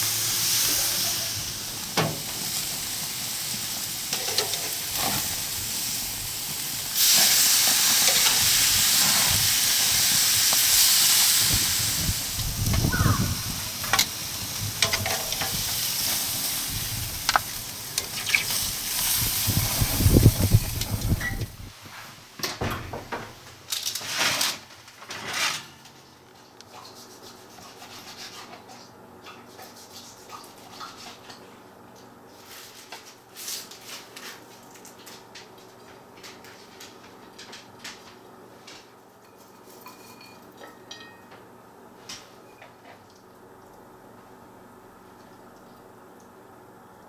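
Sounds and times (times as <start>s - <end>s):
utensils clattering against dishes: 4.1s - 5.3s, 39.3s - 41.3s.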